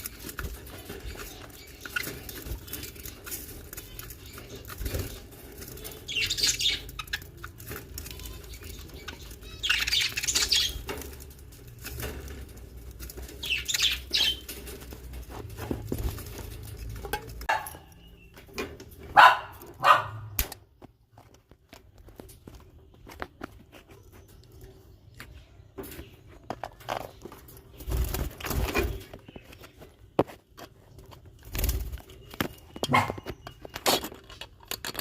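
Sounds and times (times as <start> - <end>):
baby birds chirping: 0.0 - 18.5.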